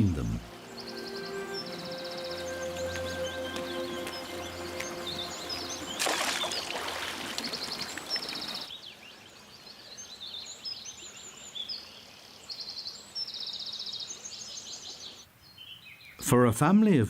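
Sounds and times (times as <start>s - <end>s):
small birds chirping and trilling: 0.0s - 16.2s
water splashing and rushing: 2.4s - 8.7s.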